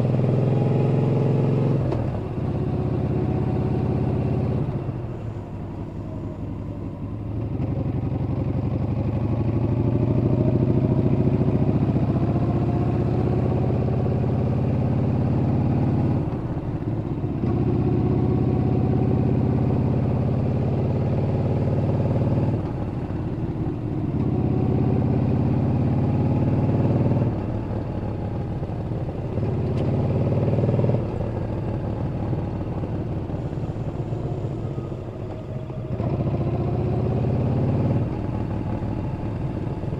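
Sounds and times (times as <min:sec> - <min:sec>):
motorcycle engine revving: 0:00.0 - 0:05.0, 0:07.4 - 0:39.9.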